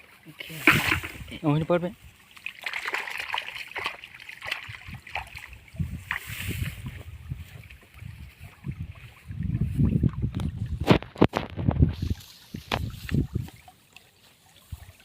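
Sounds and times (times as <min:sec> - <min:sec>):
shallow water splashing: 0:00.0 - 0:11.2.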